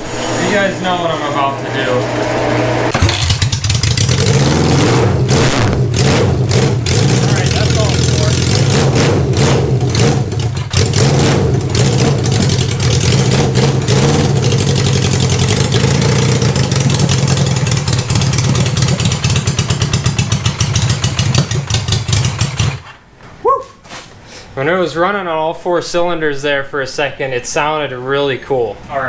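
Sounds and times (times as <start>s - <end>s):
motorcycle engine running loud: 2.9s - 22.8s.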